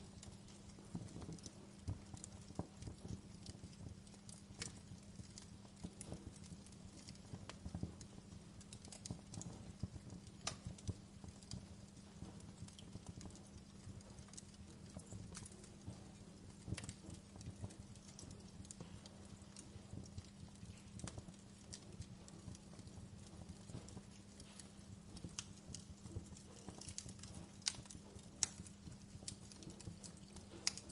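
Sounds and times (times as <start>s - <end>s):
wood fire crackling: 0.0s - 30.9s.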